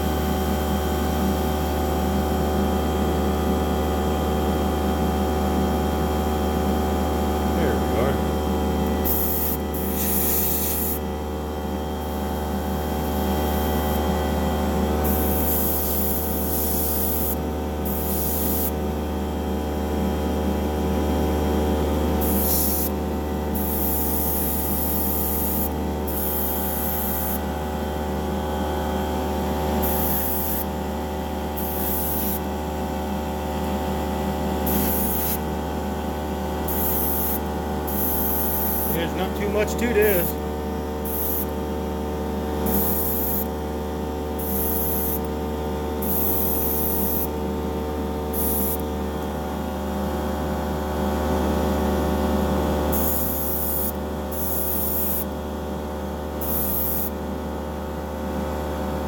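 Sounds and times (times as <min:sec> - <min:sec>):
motor-like hum: 0:03.0 - 0:50.6
airbrush spraying hiss: 0:09.0 - 0:11.0, 0:34.7 - 0:35.4.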